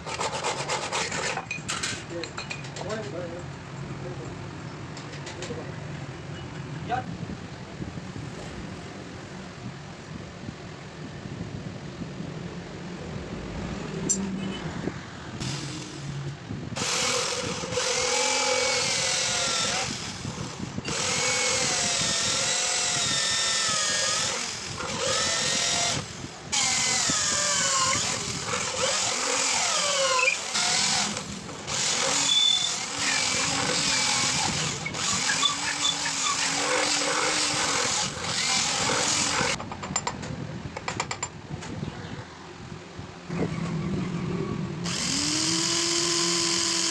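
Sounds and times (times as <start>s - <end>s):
power tool grinding steel: 16.8s - 39.6s, 44.9s - 46.9s.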